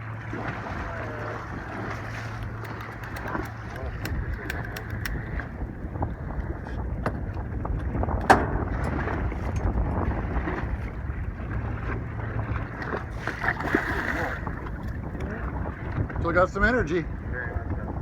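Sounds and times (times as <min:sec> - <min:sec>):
low rumble on a boat: 0:00.0 - 0:18.0
wind buffeting microphone: 0:00.0 - 0:18.0
small clicks: 0:02.5 - 0:05.2.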